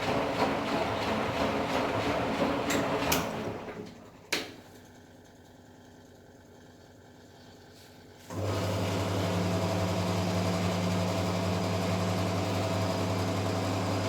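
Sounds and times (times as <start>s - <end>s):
washing machine drum motor: 0.0s - 4.0s, 8.3s - 14.0s.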